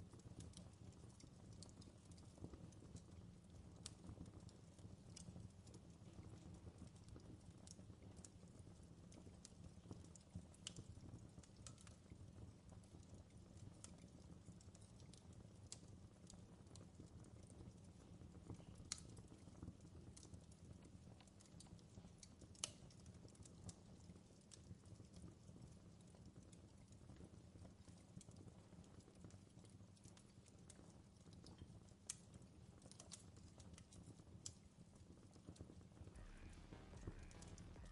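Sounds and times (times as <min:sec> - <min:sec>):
campfire crackling: 0:00.0 - 0:37.9
low steady rumble: 0:36.2 - 0:37.9.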